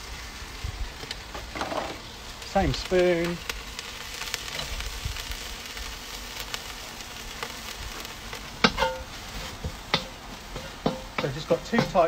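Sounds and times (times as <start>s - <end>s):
seaweed sizzling in wok: 0.0s - 12.0s
spatula knocking metal wok: 8.6s - 12.0s.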